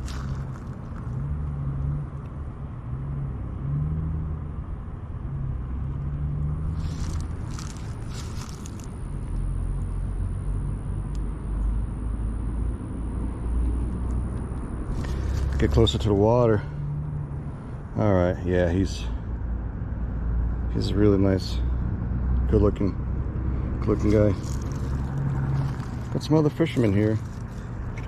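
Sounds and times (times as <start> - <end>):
scratchy rustling: 0.0 - 1.2, 6.7 - 9.0, 14.9 - 15.8, 23.8 - 28.0.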